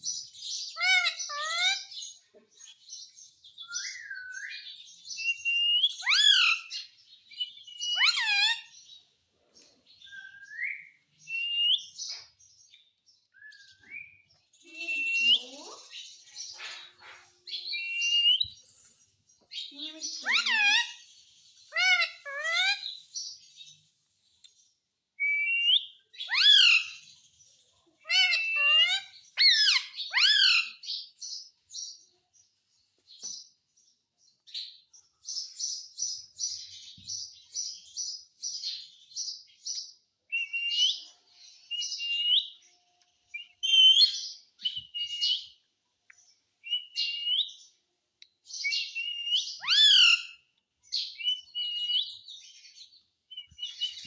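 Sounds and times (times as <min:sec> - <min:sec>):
parrot chirping and squawking: 0:00.7 - 0:02.0, 0:06.0 - 0:06.8, 0:07.5 - 0:08.8, 0:14.9 - 0:19.0, 0:20.1 - 0:23.0, 0:26.2 - 0:27.0, 0:28.0 - 0:30.8, 0:49.0 - 0:50.5.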